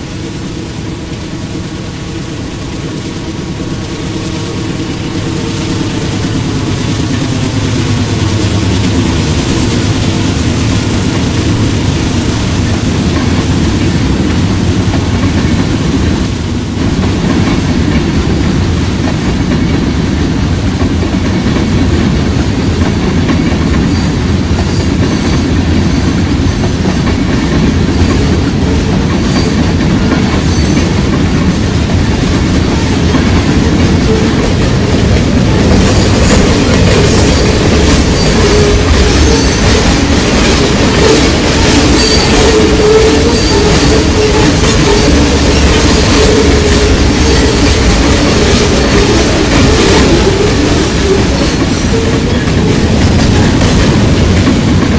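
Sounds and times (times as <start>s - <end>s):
train cars rumbling and clattering: 0.0s - 54.9s
high wheel squeals: 35.9s - 40.4s, 41.0s - 52.7s.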